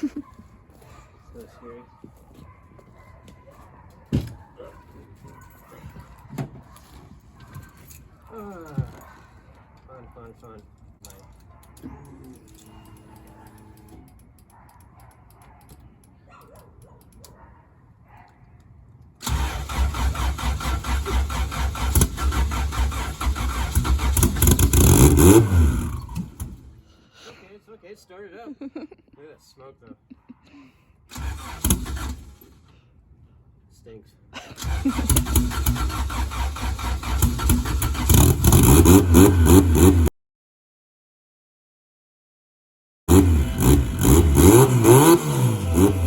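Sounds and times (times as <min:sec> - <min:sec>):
engine cranking on starter motor: 0:19.2 - 0:26.8, 0:31.1 - 0:32.8, 0:34.6 - 0:40.0, 0:43.1 - 0:46.0.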